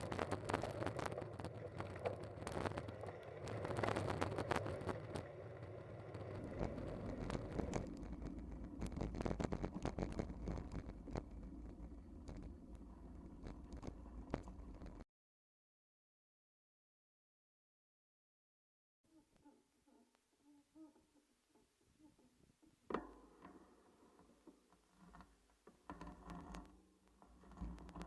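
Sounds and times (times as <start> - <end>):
bicycle tyres crunching on gravel: 0.0 - 7.9
bicycle clicks and rattles: 0.0 - 8.4.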